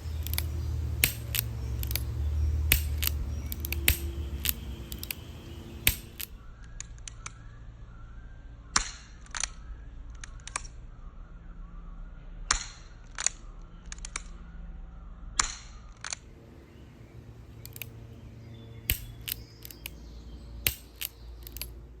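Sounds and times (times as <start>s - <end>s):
revolver action clicking: 0.0s - 7.4s, 15.4s - 22.0s
low steady hum: 0.0s - 22.0s.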